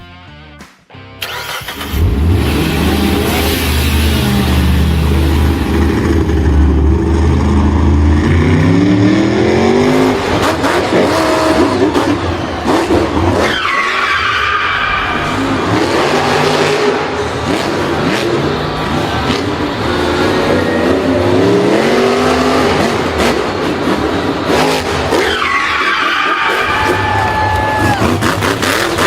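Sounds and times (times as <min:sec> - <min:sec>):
tyres skidding and squealing: 0:01.2 - 0:29.0
racing car engine revving: 0:01.3 - 0:29.0.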